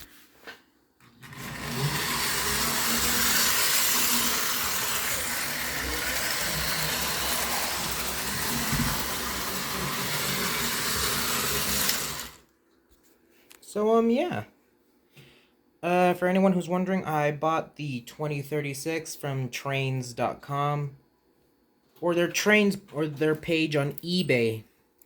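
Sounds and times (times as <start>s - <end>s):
model train running on track: 1.2s - 12.4s.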